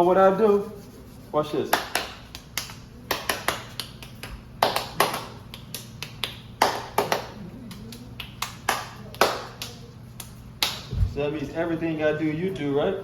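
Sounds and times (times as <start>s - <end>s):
hand claps and taps: 1.7s - 10.9s
hand claps: 1.7s - 11.0s.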